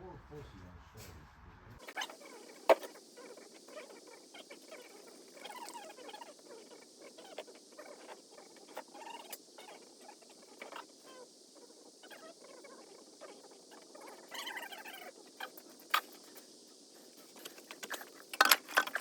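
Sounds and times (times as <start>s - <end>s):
objects scraping and clinking: 17.4s - 19.0s.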